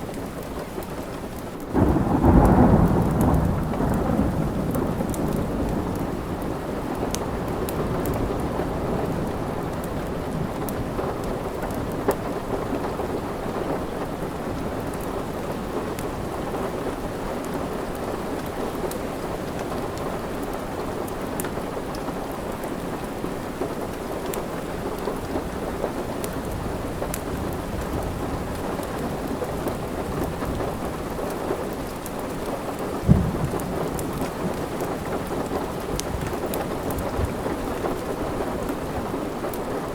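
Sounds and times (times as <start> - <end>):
heavy rain: 0.0 - 39.9
low rumble of thunder: 1.7 - 13.3, 25.4 - 39.2
wood fire crackling: 23.9 - 39.9.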